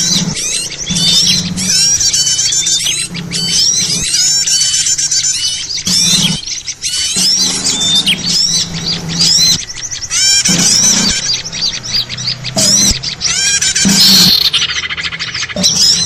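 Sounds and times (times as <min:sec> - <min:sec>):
low hum: 0:00.0 - 0:04.8, 0:05.6 - 0:16.0
small birds chirping: 0:00.0 - 0:16.0.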